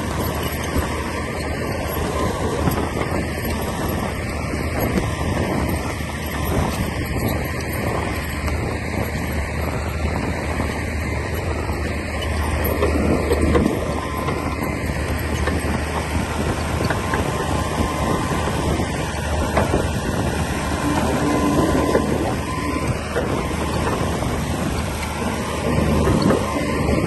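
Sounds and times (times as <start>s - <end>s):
bulldozer diesel engine: 0.0s - 27.0s.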